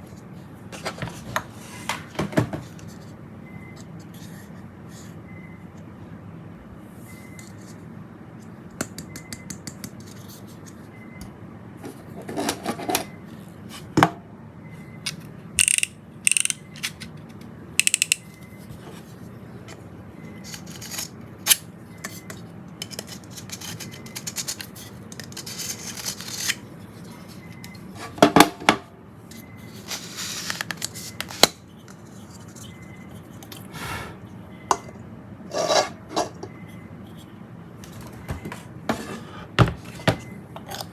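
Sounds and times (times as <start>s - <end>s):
small hard parts clicking: 15.6s - 17.1s, 17.8s - 18.3s.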